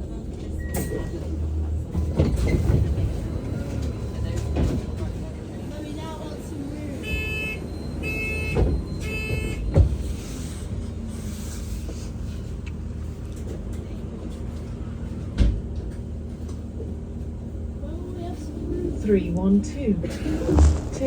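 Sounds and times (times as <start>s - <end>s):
bus low hum: 0.0s - 21.0s
bus doors knocking: 7.1s - 10.2s, 15.2s - 16.7s.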